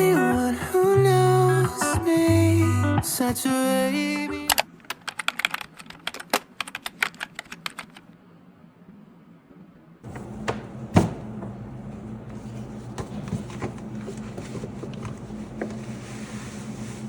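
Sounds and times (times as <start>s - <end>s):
steady low hum: 8.4s - 17.0s.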